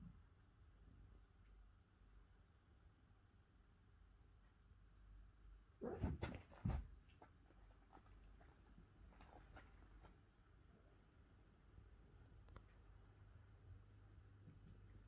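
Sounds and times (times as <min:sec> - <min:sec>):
kitten scrabbling knocks and rustling: 0:05.8 - 0:10.1.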